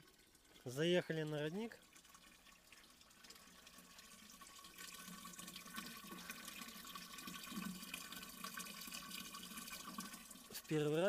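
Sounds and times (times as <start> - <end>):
spring water running: 0.0 - 11.0.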